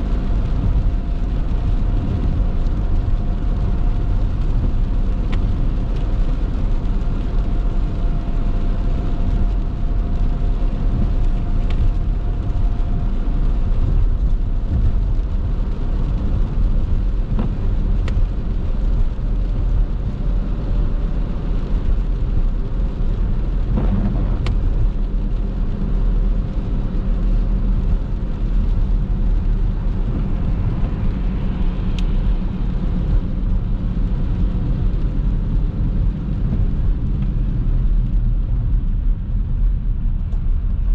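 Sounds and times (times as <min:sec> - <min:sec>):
car driving on wet road: 0:00.0 - 0:40.9.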